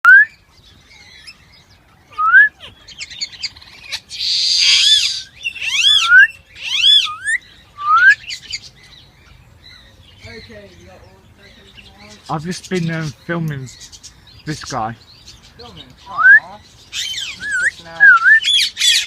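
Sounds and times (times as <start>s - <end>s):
loud arching bird calls: 0.2s - 19.0s
bird harsh screech: 3.5s - 7.4s
bird rising whistles: 4.2s - 8.3s.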